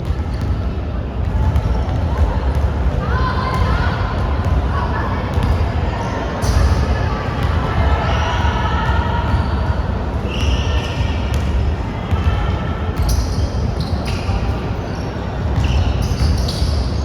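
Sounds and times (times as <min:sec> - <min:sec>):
voices in a hall: 0:00.0 - 0:17.0
basketball bouncing on court: 0:05.3 - 0:05.8, 0:08.5 - 0:14.5, 0:15.4 - 0:17.0
shoe squeaks: 0:13.0 - 0:17.0.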